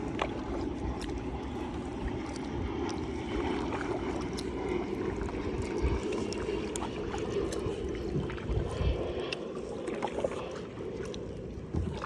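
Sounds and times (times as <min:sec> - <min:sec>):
faint splashes: 0:00.0 - 0:12.0
water moving around kayak: 0:00.0 - 0:12.0.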